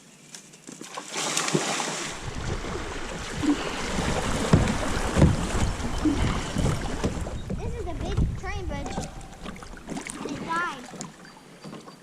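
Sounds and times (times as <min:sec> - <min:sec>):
river water rushing: 0:01.0 - 0:11.6
wind buffeting microphone: 0:02.1 - 0:10.7.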